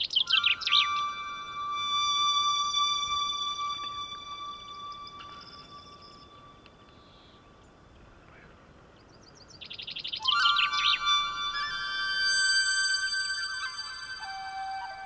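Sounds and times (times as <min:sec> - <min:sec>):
songbird trilling: 0:00.0 - 0:01.7, 0:09.0 - 0:11.8
sustained music tones: 0:00.0 - 0:07.9, 0:10.2 - 0:15.0.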